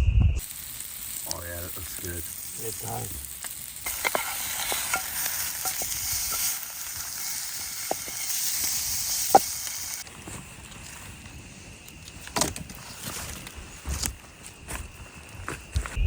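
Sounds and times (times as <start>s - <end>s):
outdoor background noise: 0.0s - 16.0s
food sizzling in a frying pan: 0.4s - 10.1s.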